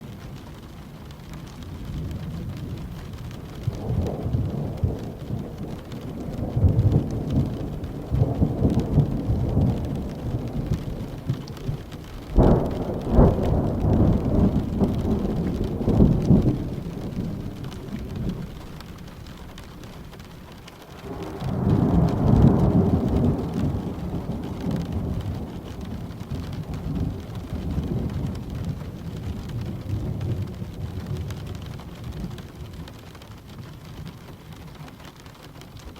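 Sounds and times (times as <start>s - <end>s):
steady rain: 0.0s - 35.9s
rolling thunder: 1.3s - 34.2s
sharp thunder crack: 3.8s - 18.8s.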